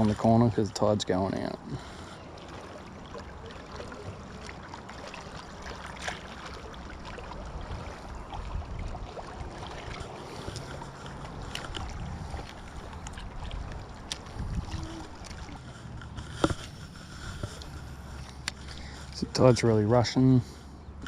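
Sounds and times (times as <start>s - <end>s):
wind buffeting microphone: 7.3s - 17.9s.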